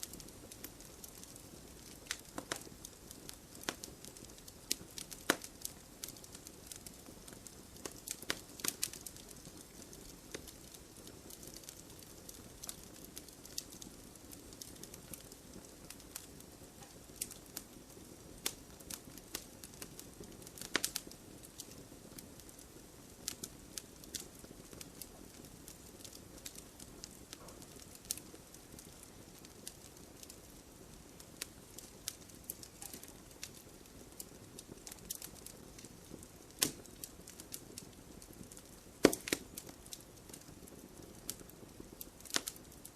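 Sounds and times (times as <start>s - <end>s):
campfire crackling and popping: 0.0s - 42.9s.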